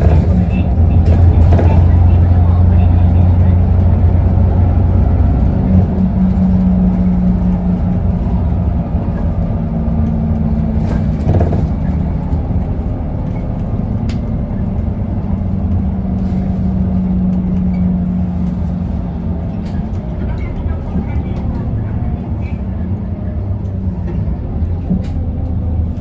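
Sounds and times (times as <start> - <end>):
bus diesel engine drone: 0.0 - 26.0
brief clatter: 10.0 - 12.4.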